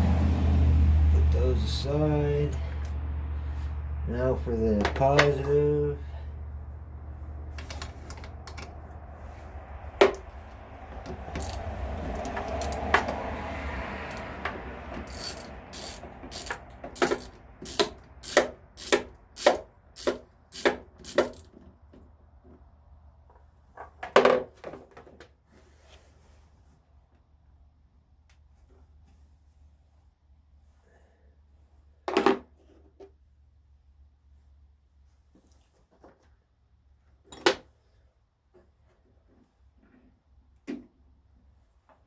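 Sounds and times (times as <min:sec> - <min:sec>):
hand tools clicking on metal: 0:11.4 - 0:13.2, 0:14.1 - 0:21.5.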